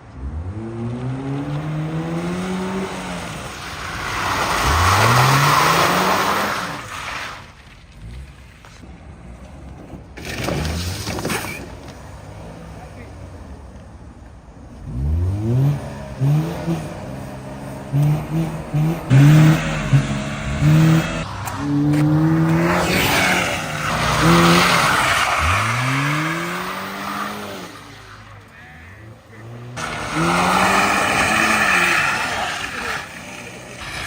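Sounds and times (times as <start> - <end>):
car engine revving hard: 0.2 - 6.9, 14.9 - 28.0, 29.3 - 34.0.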